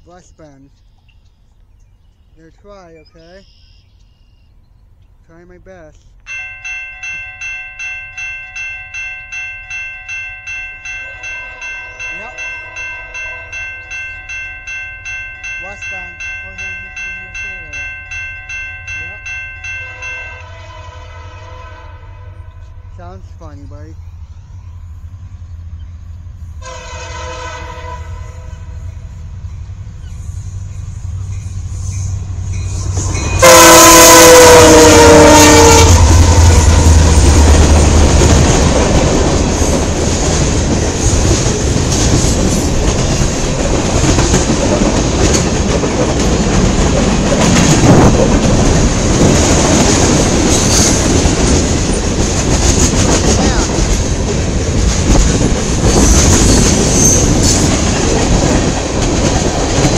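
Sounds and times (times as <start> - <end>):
diesel locomotives rumbling past: 4.5 - 59.9
train air horn blast: 19.9 - 22.9, 26.6 - 28.8, 33.2 - 37.1
freight cars wheel clickety-clack: 36.0 - 59.9.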